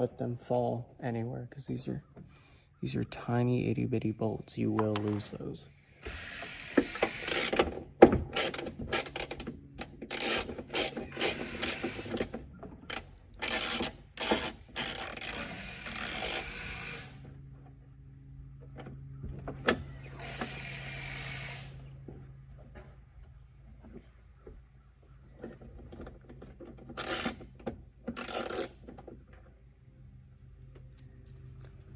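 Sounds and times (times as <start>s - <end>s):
wrench scraping and clicking on nuts: 6.0s - 17.2s, 25.4s - 29.4s.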